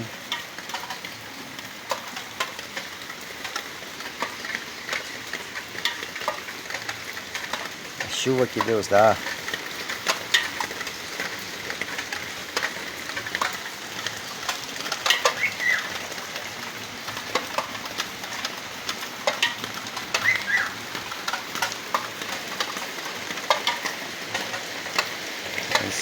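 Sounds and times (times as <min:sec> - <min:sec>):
heavy rain falling: 0:00.0 - 0:26.0
raindrops ticking and splashing: 0:00.0 - 0:26.0
bird chirping: 0:15.4 - 0:15.9, 0:20.2 - 0:20.8.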